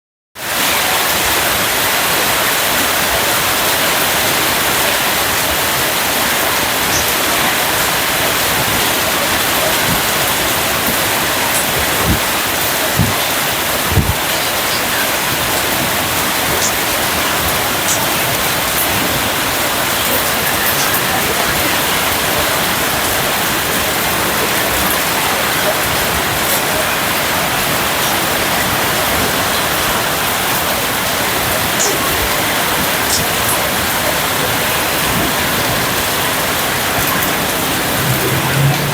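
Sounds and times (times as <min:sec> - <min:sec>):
heavy rain: 0:00.4 - 0:38.9
loud drips or thumps: 0:09.6 - 0:19.1.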